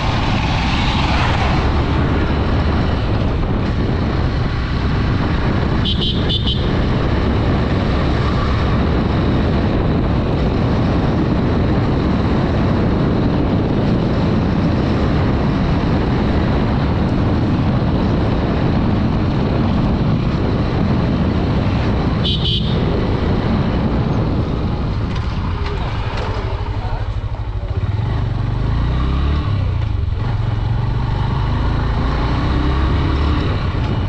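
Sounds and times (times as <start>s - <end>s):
motorcycle engine: 0.0s - 34.0s
wind noise: 0.0s - 34.0s
horn beep: 5.8s - 6.7s.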